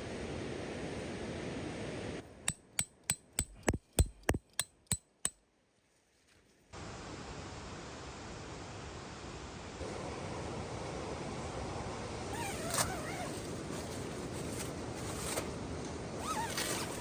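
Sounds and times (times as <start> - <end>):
rain-like hiss: 0.0 - 2.3, 6.6 - 17.0.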